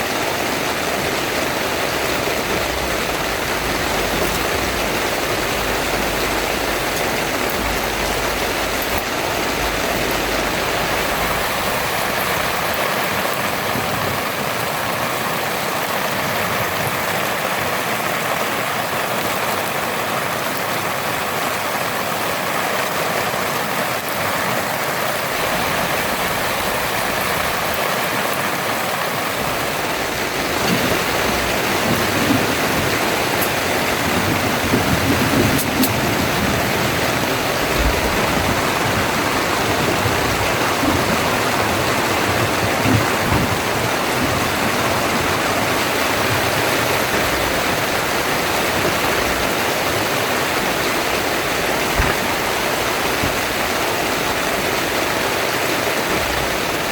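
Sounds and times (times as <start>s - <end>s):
heavy rain hissing: 0.0s - 56.9s
low rumbles: 0.9s - 12.9s, 29.4s - 55.0s.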